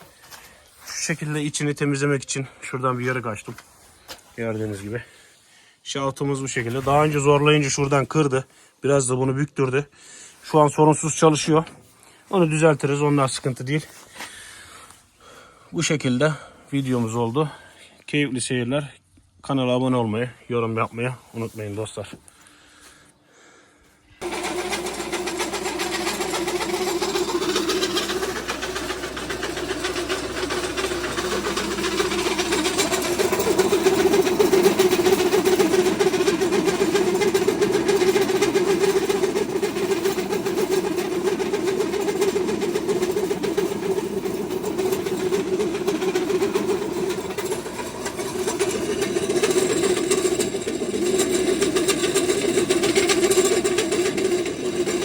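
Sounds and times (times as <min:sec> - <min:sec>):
feed machine droning and grinding: 0:24.2 - 0:55.0.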